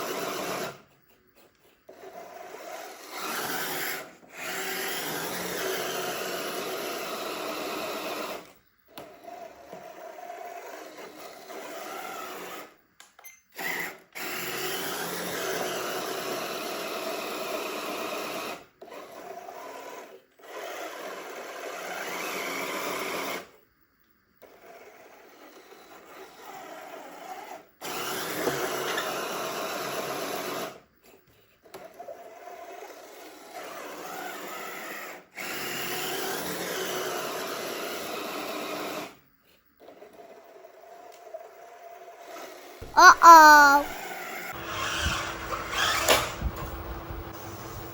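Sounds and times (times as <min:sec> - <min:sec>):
small electric motors whirring: 0:00.0 - 0:12.8, 0:13.6 - 0:16.8, 0:44.6 - 0:46.4.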